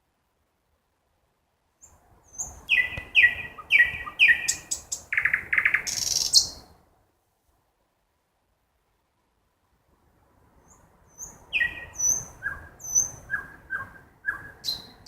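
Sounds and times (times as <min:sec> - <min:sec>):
nightingale song: 0:01.6 - 0:06.8, 0:10.4 - 0:15.0
falling whistled bird notes: 0:02.3 - 0:06.6, 0:11.2 - 0:14.9
fast rattling bird trill: 0:02.3 - 0:06.6, 0:11.2 - 0:14.9.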